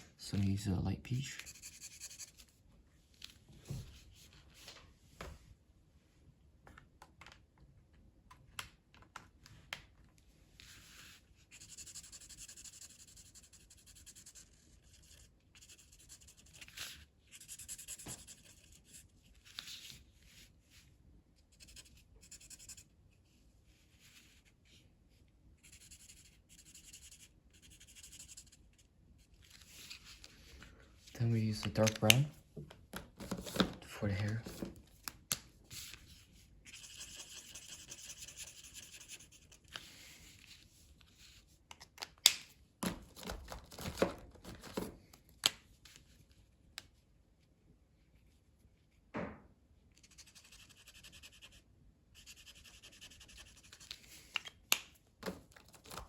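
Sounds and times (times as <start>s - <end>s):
colouring tool scratching paper: 1.4s - 2.4s, 11.5s - 16.7s, 17.3s - 18.9s, 36.7s - 39.6s, 50.1s - 51.6s, 52.2s - 53.8s.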